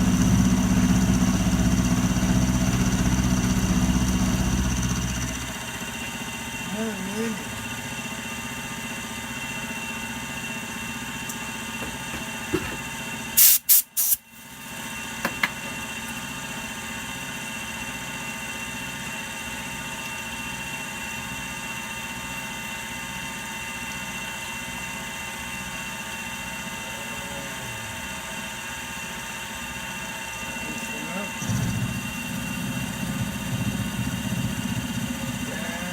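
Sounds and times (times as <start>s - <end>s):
milling machine running: 0.0s - 12.5s, 25.2s - 35.9s.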